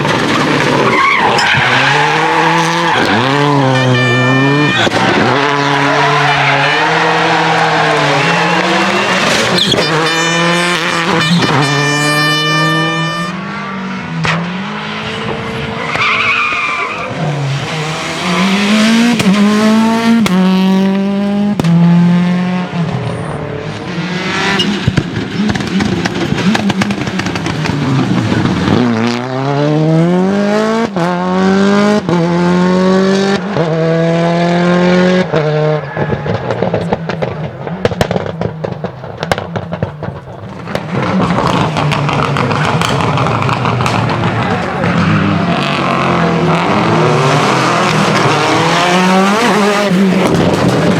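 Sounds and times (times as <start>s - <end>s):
tyre noise: 0.0s - 13.5s
rally car engine revving: 0.0s - 50.9s
sharp cracks: 36.0s - 44.7s.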